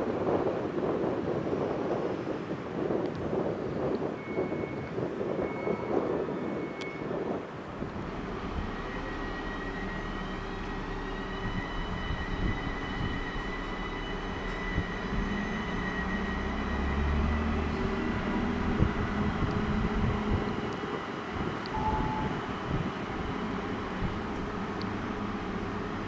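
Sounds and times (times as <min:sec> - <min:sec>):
low rumble: 0:07.6 - 0:26.0
steady high whine: 0:07.6 - 0:26.0.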